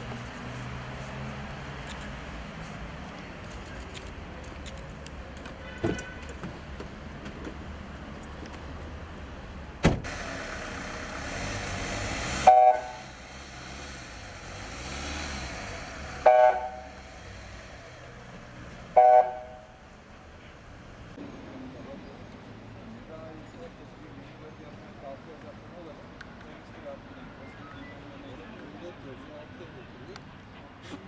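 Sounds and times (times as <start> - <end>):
vehicle passing rush: 0.0 - 5.4, 6.3 - 27.3
hum of traffic: 0.0 - 31.0
car horn honks: 5.6 - 6.4, 12.4 - 13.1, 16.2 - 17.0, 18.9 - 19.8.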